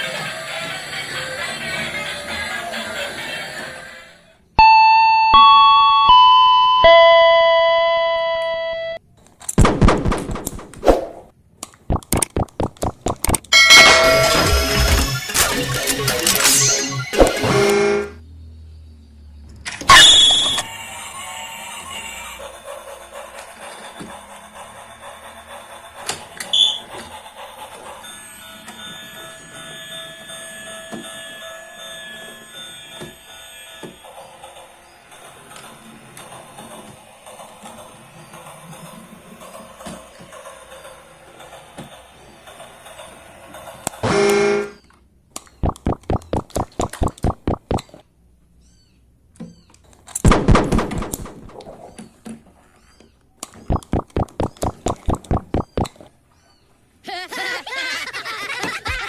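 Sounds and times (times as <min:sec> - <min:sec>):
electronic chime note: 0:04.6 - 0:09.0
short high toy beep: 0:04.6 - 0:09.0, 0:19.9 - 0:20.7, 0:26.5 - 0:26.9
hard knocks and rattles: 0:09.6 - 0:10.8, 0:50.3 - 0:52.1
high electronic toy whine: 0:19.9 - 0:35.7
quick sharp clicks: 0:45.4 - 0:48.0, 0:53.4 - 0:56.0.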